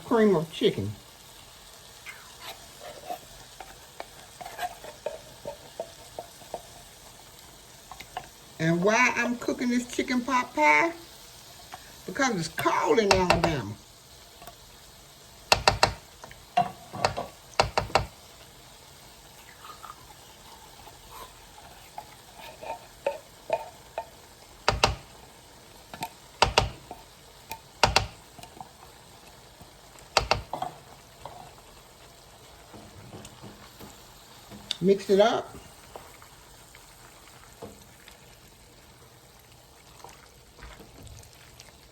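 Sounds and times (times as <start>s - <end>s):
spoon scraping pot: 2.2s - 7.2s, 15.5s - 18.5s, 19.2s - 25.2s, 30.1s - 31.8s
spoon knocking against pot: 13.1s - 13.7s, 15.5s - 18.2s, 23.0s - 25.2s, 25.9s - 28.6s, 30.1s - 30.8s.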